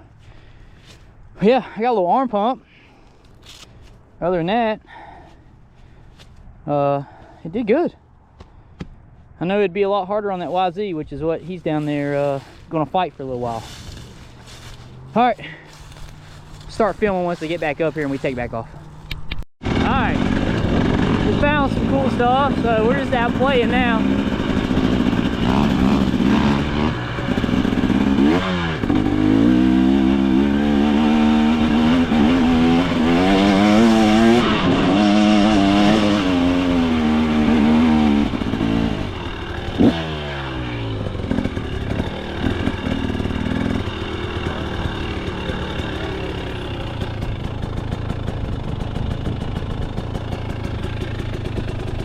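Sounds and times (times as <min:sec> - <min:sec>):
dirt bike engine revving: 0:11.6 - 0:52.0.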